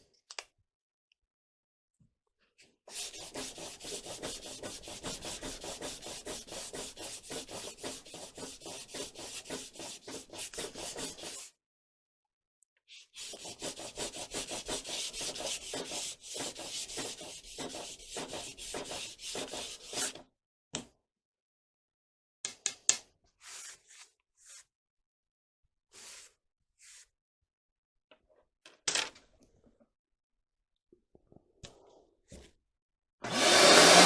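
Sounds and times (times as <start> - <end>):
sandpaper rubbing: 2.9 - 11.5, 13.1 - 20.2.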